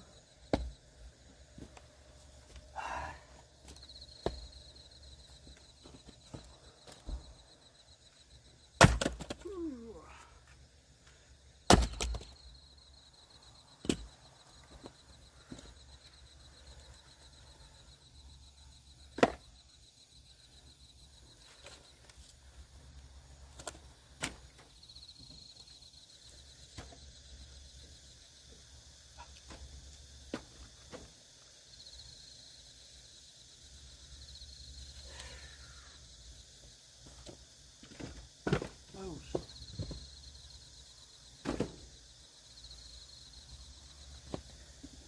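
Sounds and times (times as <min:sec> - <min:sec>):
axe chopping firewood: 0:00.5 - 0:00.8, 0:08.8 - 0:09.6, 0:11.7 - 0:12.4, 0:19.2 - 0:19.5, 0:37.9 - 0:39.5, 0:41.4 - 0:41.8
knocks of wood: 0:00.5 - 0:00.8, 0:41.4 - 0:41.8.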